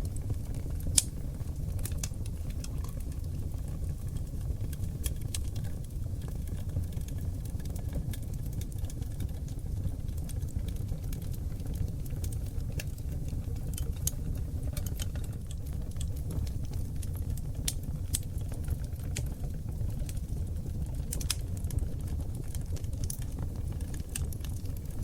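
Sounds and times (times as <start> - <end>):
fire crackling and popping: 0.0 - 25.0.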